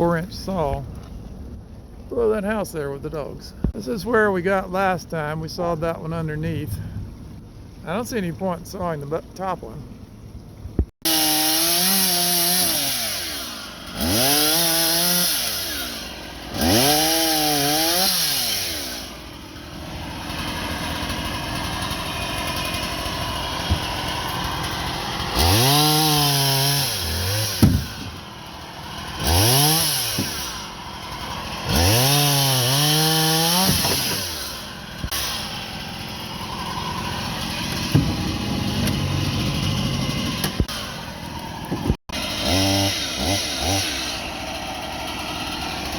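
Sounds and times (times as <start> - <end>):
chainsaw revving: 11.0 - 45.9.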